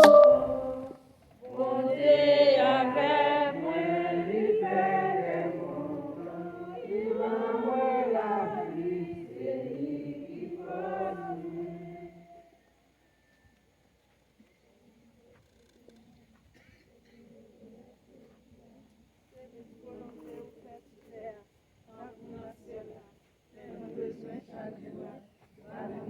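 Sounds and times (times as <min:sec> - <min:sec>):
group singing unaccompanied: 0:00.0 - 0:12.6, 0:19.4 - 0:26.0.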